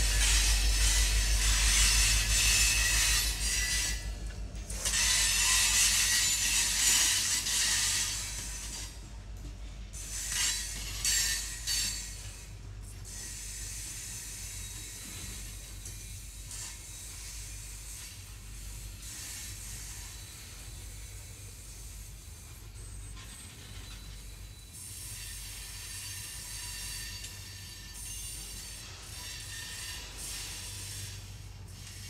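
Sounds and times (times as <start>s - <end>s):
train wheels rattling on rails: 0.0s - 32.0s.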